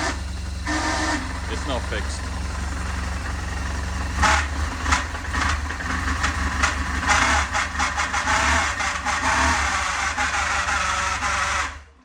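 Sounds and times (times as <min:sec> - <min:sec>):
motorcycle engine idling: 0:00.0 - 0:11.2
engine clicks and knocks: 0:00.0 - 0:11.8.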